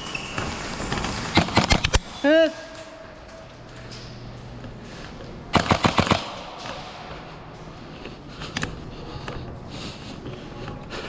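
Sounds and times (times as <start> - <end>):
airsoft gun shots: 1.3 - 2.0, 5.5 - 7.0.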